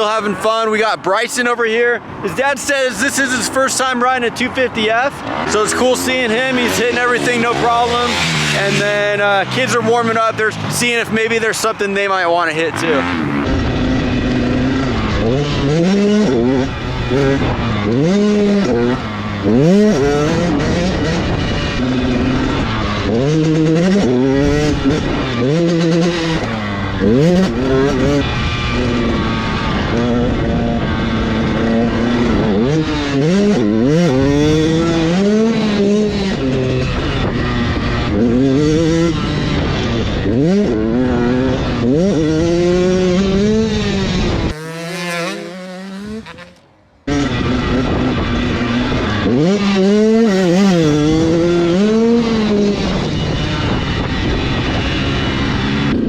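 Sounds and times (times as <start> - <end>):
dirt bike engines revving: 0.0 - 56.0
steady noisy rush: 0.2 - 22.8.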